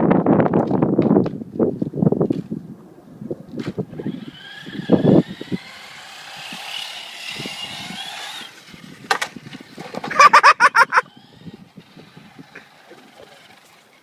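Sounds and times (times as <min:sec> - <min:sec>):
electric motor whining: 0:03.6 - 0:14.0.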